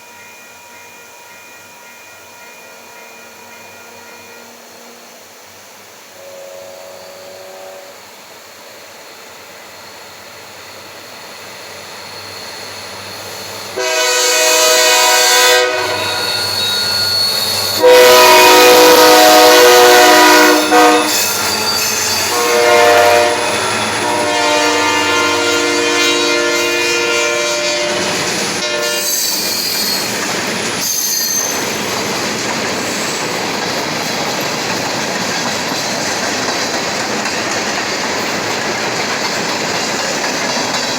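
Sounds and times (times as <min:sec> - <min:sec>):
train horn blasts: 0:02.0 - 0:05.3, 0:06.1 - 0:08.1, 0:13.8 - 0:29.6.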